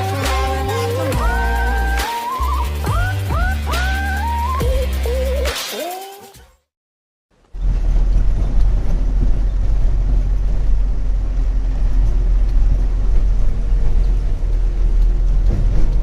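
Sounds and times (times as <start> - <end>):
road noise: 7.4 - 16.0
truck engine rumble: 7.4 - 16.0.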